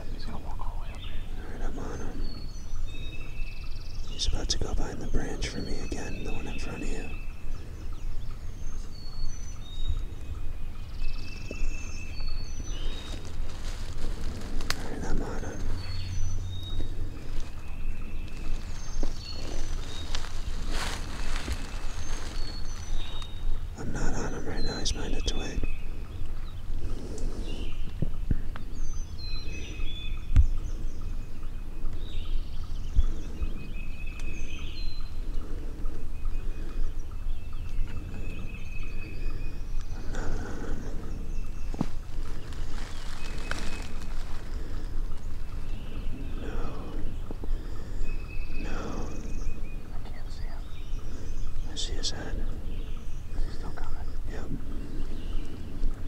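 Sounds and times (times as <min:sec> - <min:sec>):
low outdoor rumble: 0:00.0 - 0:56.0
songbirds whistling: 0:00.0 - 0:56.0.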